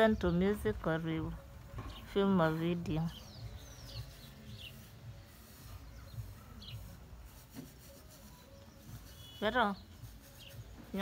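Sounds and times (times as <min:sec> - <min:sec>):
bird chirps: 0:03.0 - 0:07.0, 0:08.3 - 0:10.7.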